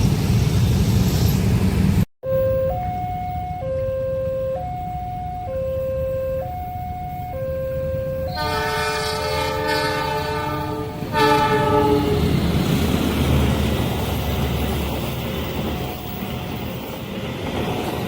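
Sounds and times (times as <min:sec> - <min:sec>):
level crossing alarm tones: 0:02.2 - 0:09.1
locomotive horn blasts: 0:07.8 - 0:12.2.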